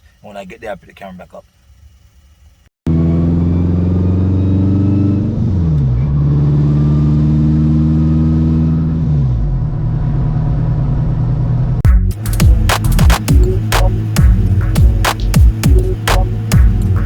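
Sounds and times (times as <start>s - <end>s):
car engine running: 7.8s - 17.0s.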